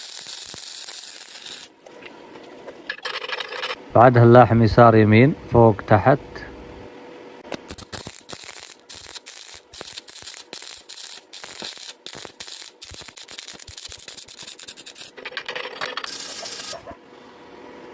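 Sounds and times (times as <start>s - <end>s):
welding arc crackling and popping: 0.0s - 2.0s, 7.5s - 16.8s.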